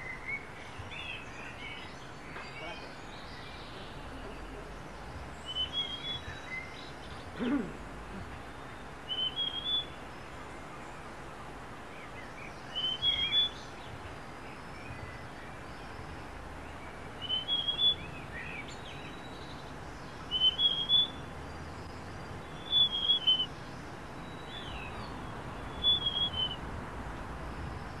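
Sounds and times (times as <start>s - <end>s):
steady background hiss: 0.0s - 28.0s
bird whistling song: 5.4s - 7.3s, 9.1s - 10.0s, 12.0s - 13.9s, 17.2s - 21.3s, 21.9s - 26.6s.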